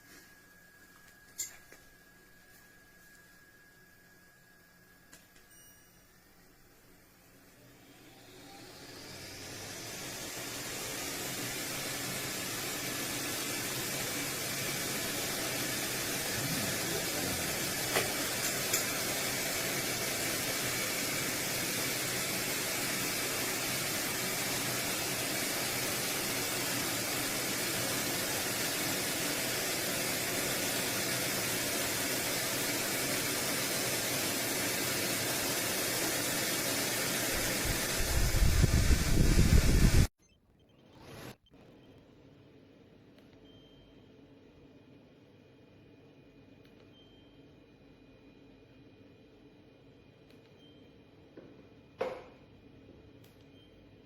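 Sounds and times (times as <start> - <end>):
fan blowing air: 7.4 - 40.1.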